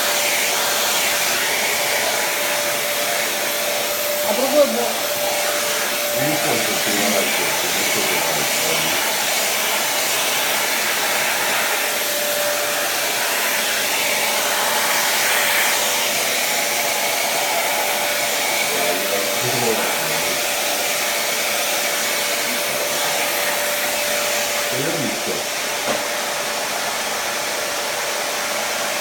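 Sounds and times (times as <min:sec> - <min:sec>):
vacuum cleaner running: 0:00.0 - 0:29.0.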